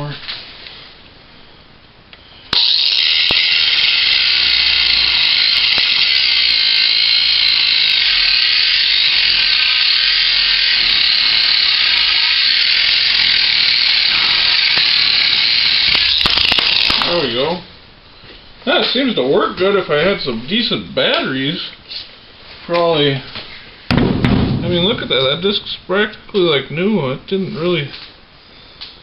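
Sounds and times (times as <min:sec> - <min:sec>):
angle grinder cutting steel: 0:02.5 - 0:17.5.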